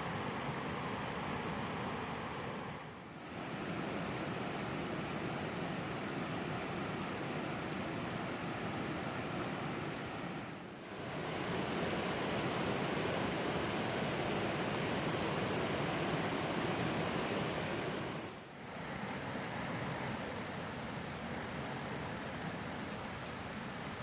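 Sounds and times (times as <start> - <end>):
waterfall and river rushing: 0.0 - 22.8.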